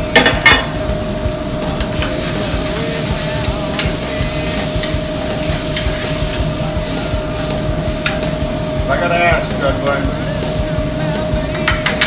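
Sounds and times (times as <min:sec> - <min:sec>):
meat sizzling in a skillet: 0:00.0 - 0:12.0
steady hum: 0:00.0 - 0:12.0
tongs clicking against pan: 0:11.5 - 0:12.0.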